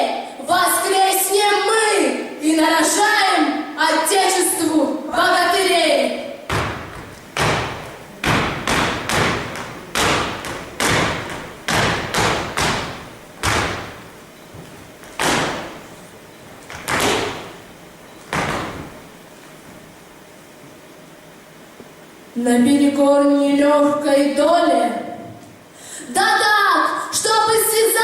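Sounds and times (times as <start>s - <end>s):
feet stamping on a stage floor: 6.5s - 19.9s.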